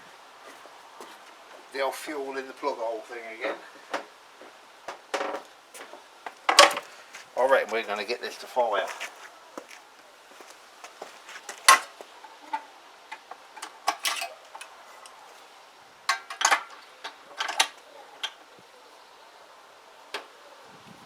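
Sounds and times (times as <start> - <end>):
metal hand tools clinking: 13.2 - 15.2.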